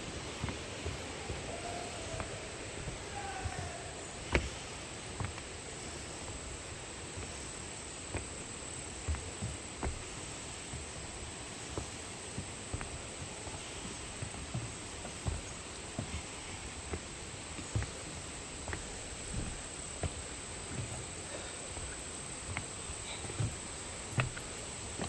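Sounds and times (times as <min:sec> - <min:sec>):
mountain stream rushing: 0:00.0 - 0:08.3
high insect drone: 0:00.0 - 0:25.0
soft footsteps: 0:00.0 - 0:25.0.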